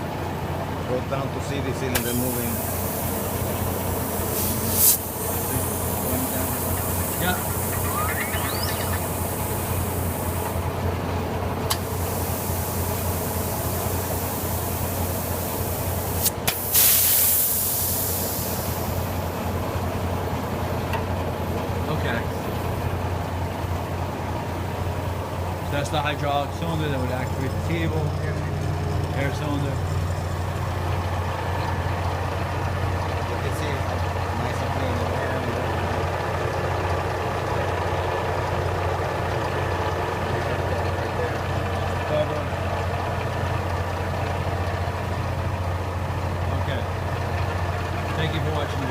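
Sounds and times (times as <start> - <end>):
valve clicks: 2.0 - 2.2
compressed air hissing: 2.0 - 10.6, 11.7 - 19.2.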